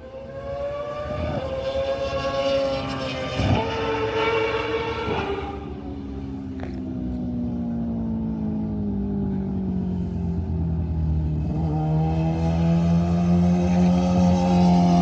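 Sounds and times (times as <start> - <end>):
racing motorcycle engine revving: 0.0 - 6.8, 10.7 - 15.0.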